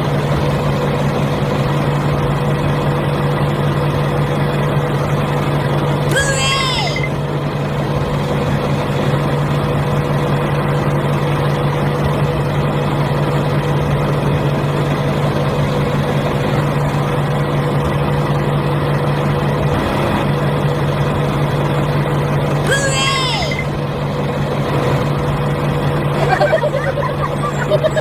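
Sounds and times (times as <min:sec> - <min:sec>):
small motor humming: 0:22.6 - 0:28.0.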